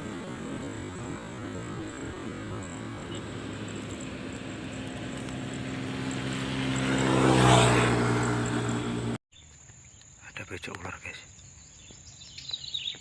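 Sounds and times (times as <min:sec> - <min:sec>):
passing engine hum: 0:00.0 - 0:09.2.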